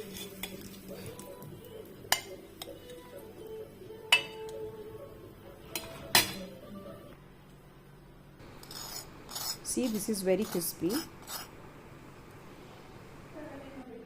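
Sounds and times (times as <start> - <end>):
utensils clinking on a pan: 0.0 - 1.2, 4.1 - 4.6, 5.7 - 6.5.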